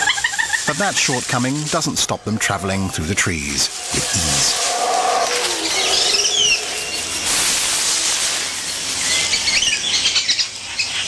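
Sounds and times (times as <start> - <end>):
steady high hiss: 0.4 - 11.0
high chirping calls: 3.6 - 7.5.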